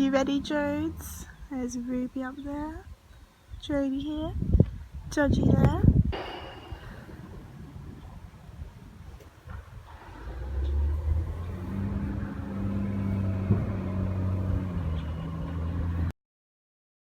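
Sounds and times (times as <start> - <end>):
vehicle engine running: 0.0 - 2.7, 9.5 - 16.1.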